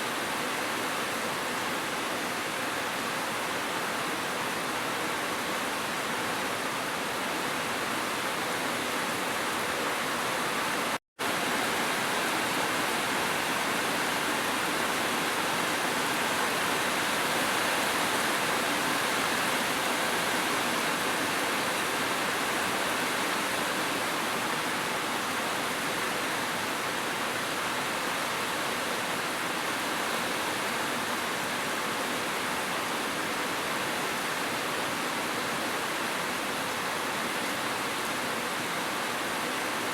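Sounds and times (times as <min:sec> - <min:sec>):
rain: 0:00.0 - 0:39.9
waterfall: 0:00.0 - 0:39.9.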